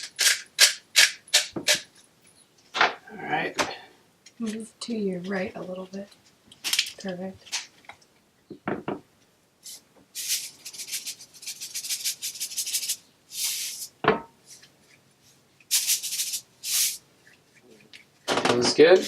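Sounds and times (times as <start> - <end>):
seasoning shaker rattling: 9.6 - 14.7, 15.7 - 18.3.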